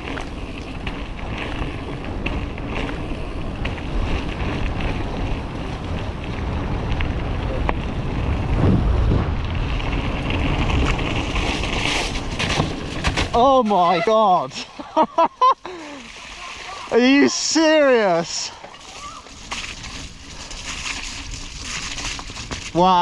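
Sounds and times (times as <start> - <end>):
bike rattling clicks and knocks: 0.0 - 8.4, 9.4 - 13.8, 18.4 - 23.0
wind buffeting microphone: 0.0 - 13.4.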